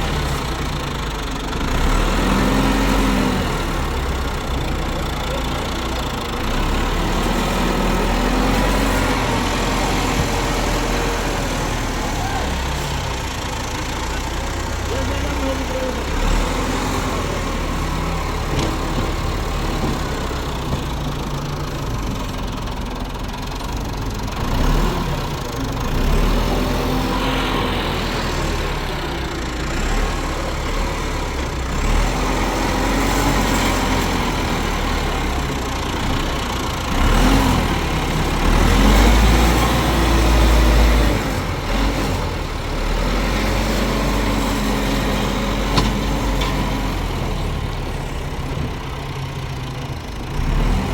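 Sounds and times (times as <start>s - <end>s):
engine rumbling: 0.0s - 50.9s.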